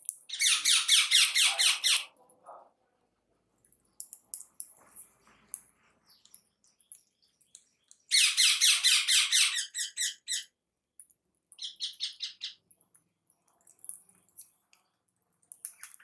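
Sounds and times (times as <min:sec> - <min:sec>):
pet birds calling rapidly: 0:00.3 - 0:02.1, 0:06.1 - 0:10.6, 0:11.5 - 0:12.6.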